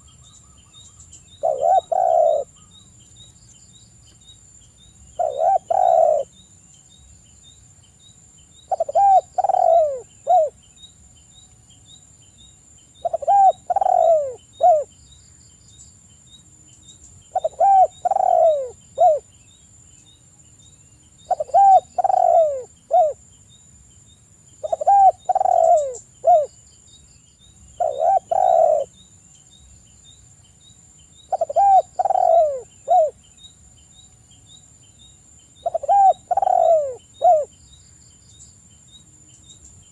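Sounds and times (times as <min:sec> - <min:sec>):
dove cooing: 0:01.3 - 0:02.7, 0:05.2 - 0:06.3, 0:08.7 - 0:10.6, 0:13.0 - 0:14.9, 0:17.3 - 0:19.3, 0:21.3 - 0:23.2, 0:24.6 - 0:26.5, 0:27.8 - 0:28.9, 0:31.3 - 0:33.2, 0:35.6 - 0:37.5.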